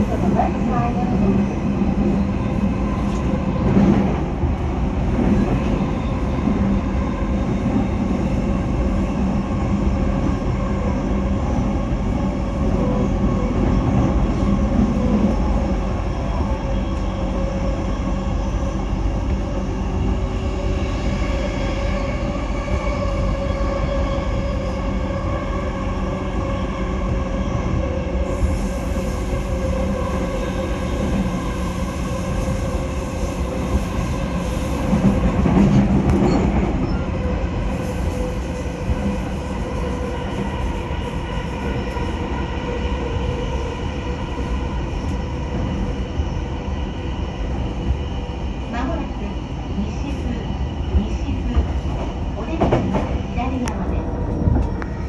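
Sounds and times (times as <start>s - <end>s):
steady train hum: 0.0s - 55.0s
train wheels on rails: 27.0s - 55.0s.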